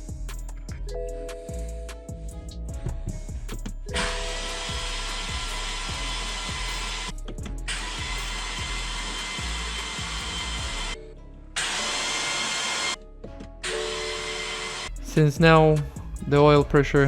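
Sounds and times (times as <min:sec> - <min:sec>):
starter motor cranking: 0:03.9 - 0:11.0, 0:11.6 - 0:13.0, 0:13.6 - 0:15.0.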